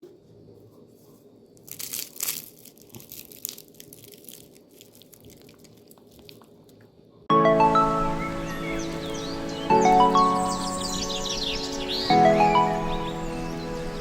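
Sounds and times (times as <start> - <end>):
dry crunching and crackling: 0.8 - 6.9.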